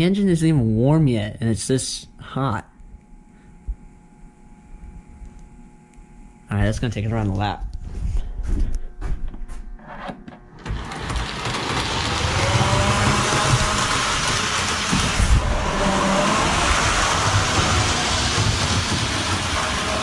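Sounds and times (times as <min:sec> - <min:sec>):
model train wheels rattling: 0:10.7 - 0:20.0.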